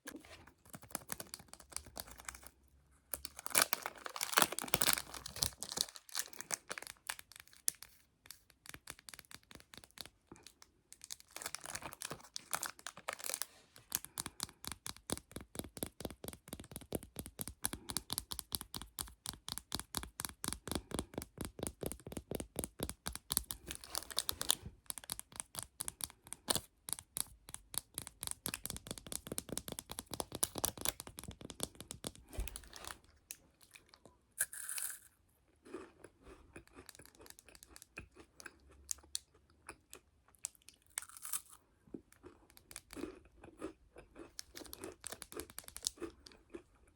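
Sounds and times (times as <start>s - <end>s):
crinkling: 0.0s - 17.9s, 21.7s - 26.7s.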